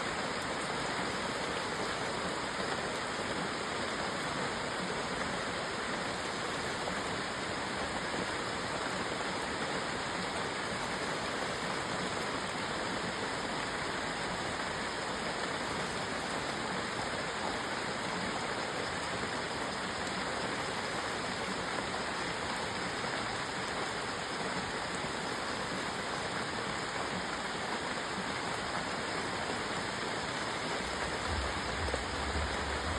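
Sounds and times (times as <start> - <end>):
rain falling steadily: 0.0 - 32.9.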